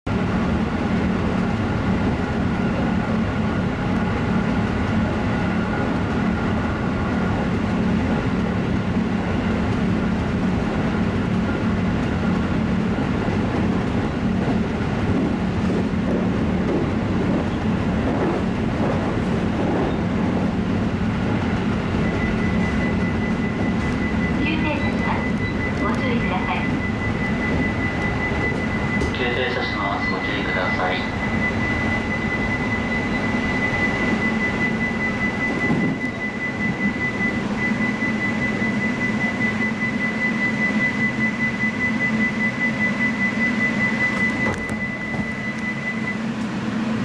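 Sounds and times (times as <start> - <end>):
train running rumble: 0.1 - 47.0
steady high tone: 18.9 - 46.4.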